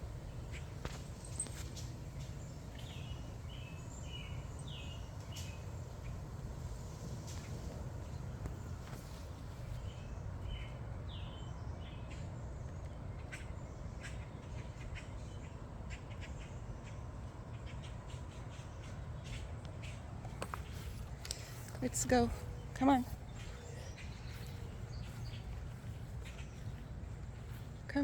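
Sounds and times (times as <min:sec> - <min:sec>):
light clicks and rustles: 0:00.5 - 0:03.0, 0:06.8 - 0:10.0, 0:19.3 - 0:28.0
steady low rumble: 0:17.1 - 0:28.0
bird chirps: 0:20.7 - 0:27.7.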